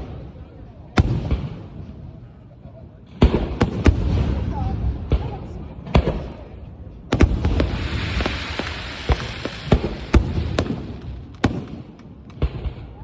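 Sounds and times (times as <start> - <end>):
crackling hiss of fireworks: 0.0 - 13.0
fireworks bangs: 1.0 - 2.1, 3.1 - 13.0.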